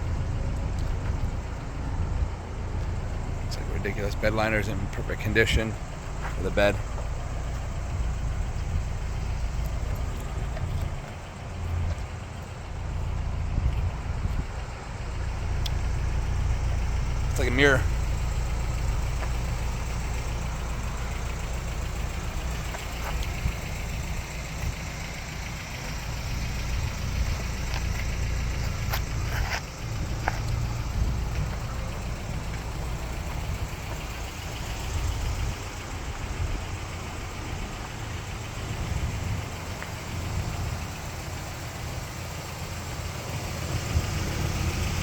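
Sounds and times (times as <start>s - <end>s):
pickup engine idling: 0.0s - 45.0s.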